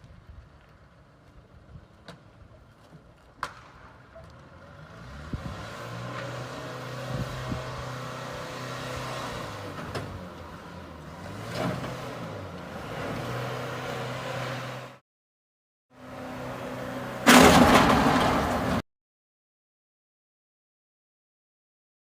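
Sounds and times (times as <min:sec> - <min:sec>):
car engine hum: 0:00.0 - 0:15.0
road noise: 0:00.0 - 0:15.0, 0:15.9 - 0:18.8.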